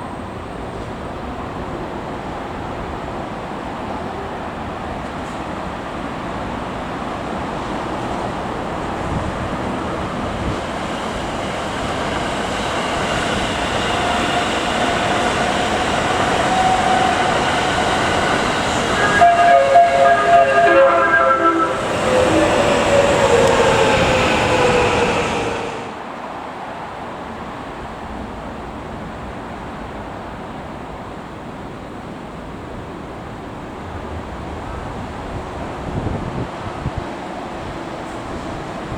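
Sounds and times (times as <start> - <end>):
electric train passing on rails: 0.0 - 38.9
train whine sliding down in pitch: 10.4 - 26.1.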